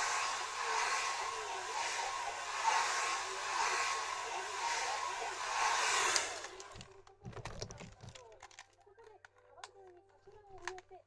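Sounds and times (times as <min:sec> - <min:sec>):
hair dryer blowing: 0:00.0 - 0:06.9
hair dryer switch click: 0:04.5 - 0:06.8.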